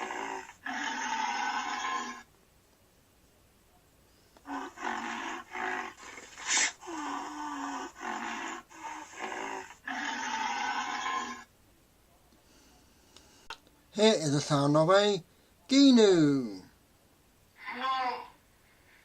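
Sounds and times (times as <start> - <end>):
rhinoceros calling: 0.0 - 2.3, 4.4 - 11.5.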